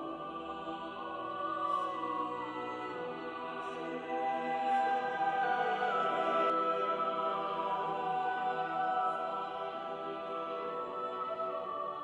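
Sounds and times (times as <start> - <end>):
slow classical-style music: 0.0 - 12.0.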